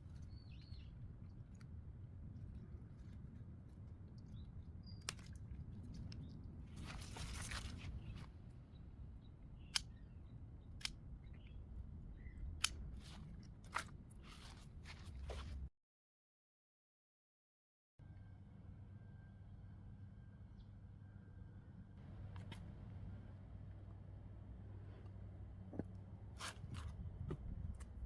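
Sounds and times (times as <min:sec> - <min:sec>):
garden scissors snipping: 0:12.6 - 0:15.6.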